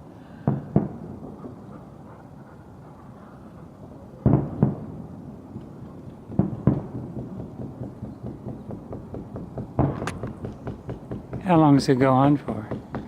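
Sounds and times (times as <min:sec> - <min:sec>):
fireworks booming: 0:00.3 - 0:01.9, 0:03.8 - 0:13.0
fireworks popping and crackling: 0:00.4 - 0:01.7, 0:04.2 - 0:13.0.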